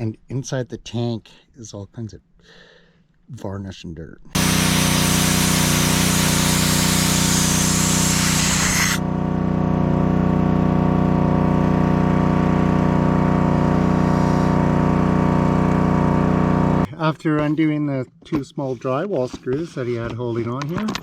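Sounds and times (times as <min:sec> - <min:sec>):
rushing hiss of air: 0:04.4 - 0:09.0
electric motor hum: 0:04.4 - 0:16.9.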